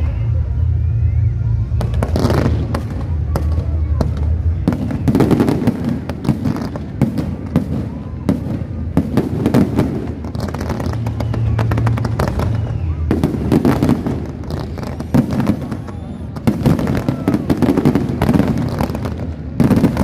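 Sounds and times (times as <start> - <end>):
low rumble: 0.0 - 19.7
fireworks bangs and crackling: 0.0 - 20.0
whistles of rising shells: 10.8 - 17.7.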